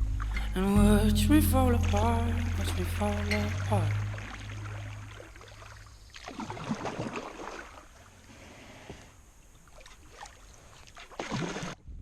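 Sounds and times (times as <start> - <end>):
water dripping: 0.0 - 7.5
kayak paddle splashing water: 4.1 - 11.8.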